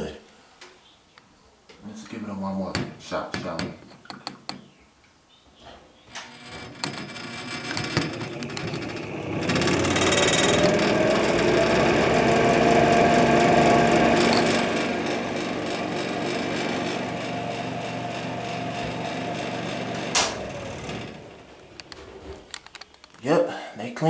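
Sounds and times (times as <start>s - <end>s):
exhaust fan motor humming: 6.2s - 22.5s.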